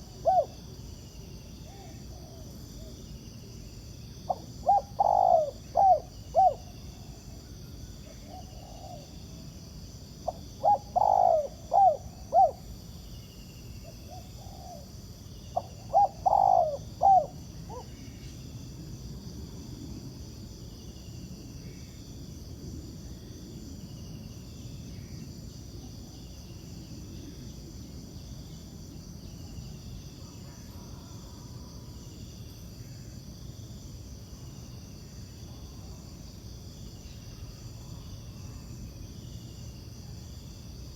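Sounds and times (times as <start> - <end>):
dove cooing: 0.0 - 0.6, 4.3 - 7.2, 8.1 - 9.2, 10.2 - 12.7, 14.1 - 14.9, 15.6 - 18.0
insects buzzing: 0.0 - 22.4.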